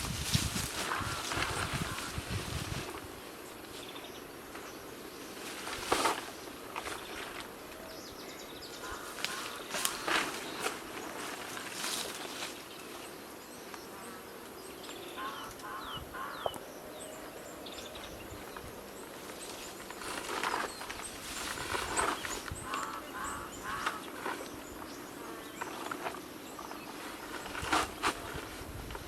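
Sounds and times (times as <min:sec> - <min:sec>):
rustling: 0:00.0 - 0:03.9, 0:05.3 - 0:07.7, 0:08.8 - 0:13.1, 0:18.3 - 0:24.8, 0:25.6 - 0:29.0
forest background noise: 0:00.0 - 0:29.0
birds honking: 0:00.8 - 0:02.3, 0:08.8 - 0:10.3, 0:15.1 - 0:16.6, 0:21.6 - 0:24.2.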